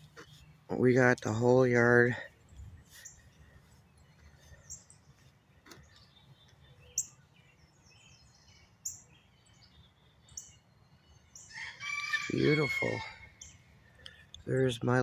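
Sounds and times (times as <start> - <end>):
faint outdoor background noise: 0.0 - 15.0
small bird chirping: 2.4 - 11.6.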